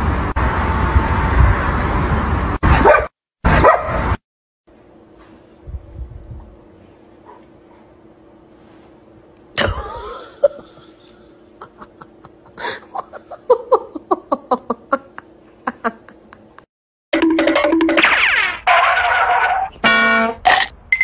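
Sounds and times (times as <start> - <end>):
person laughing: 9.6 - 16.7.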